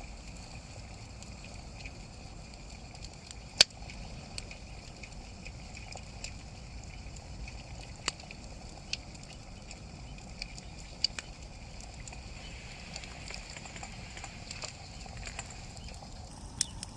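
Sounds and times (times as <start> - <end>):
campfire crackling and popping: 1.2 - 16.9
low rumble: 12.2 - 16.9.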